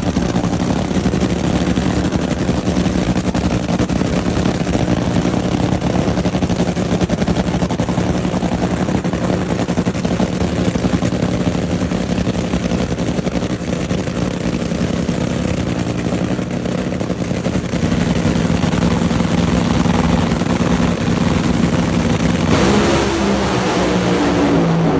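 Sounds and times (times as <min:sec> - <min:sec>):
race car engine revving: 0:17.8 - 0:24.9.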